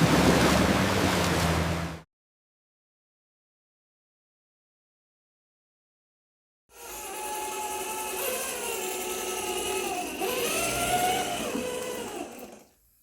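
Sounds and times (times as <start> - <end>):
small electric motor whirring: 6.7 - 13.0.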